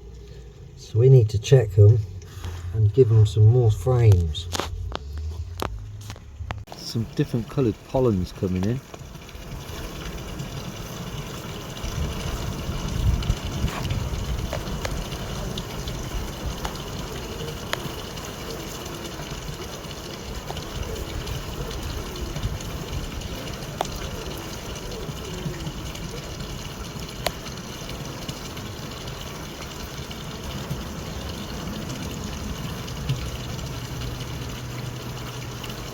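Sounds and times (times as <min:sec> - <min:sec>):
honeybee colony buzzing: 0:14.0 - 0:31.5.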